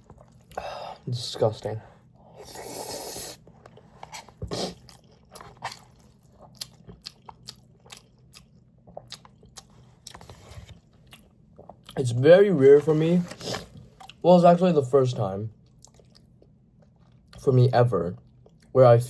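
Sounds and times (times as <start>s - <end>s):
person chewing crunchy food: 0.0s - 1.0s, 2.1s - 12.0s, 15.6s - 17.4s.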